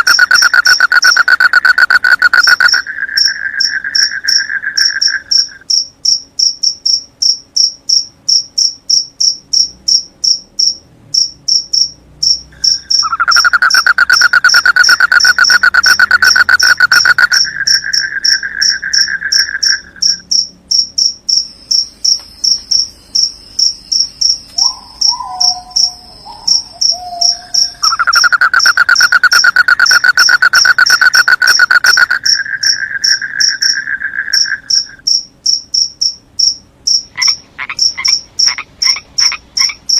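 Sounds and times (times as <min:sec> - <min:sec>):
low fast trill: 0:00.0 - 0:05.6, 0:12.7 - 0:20.3, 0:21.4 - 0:35.1
crickets chirping: 0:00.0 - 0:39.9.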